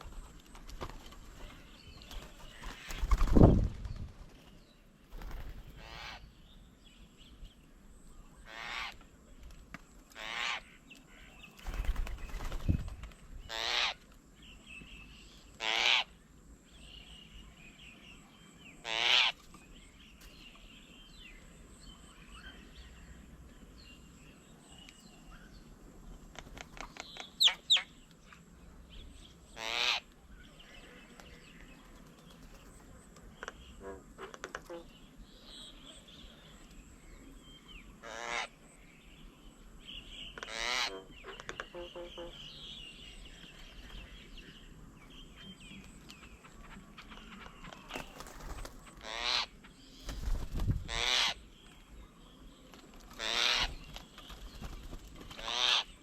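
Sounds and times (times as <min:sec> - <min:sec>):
bird harsh rasping call: 0:13.5 - 0:14.0, 0:15.6 - 0:16.1, 0:18.8 - 0:19.4, 0:29.6 - 0:30.1, 0:40.4 - 0:42.6, 0:50.9 - 0:51.4, 0:53.2 - 0:53.8, 0:55.4 - 0:56.0.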